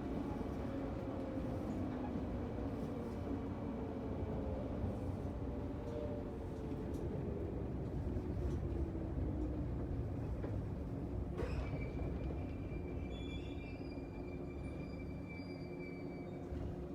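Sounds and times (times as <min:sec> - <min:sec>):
train wheels rumbling on rail: 0:00.0 - 0:16.9
high brake squeal: 0:12.7 - 0:16.6.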